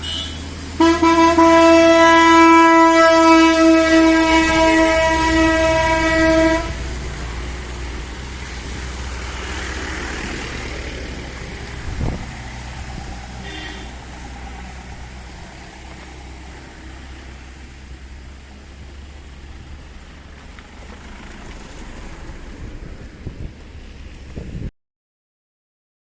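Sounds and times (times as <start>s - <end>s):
faint horn toot: 0.0s - 6.8s, 13.4s - 14.0s
loud horn blast: 0.0s - 7.2s, 13.2s - 14.3s
low rumble of traffic: 0.0s - 24.7s.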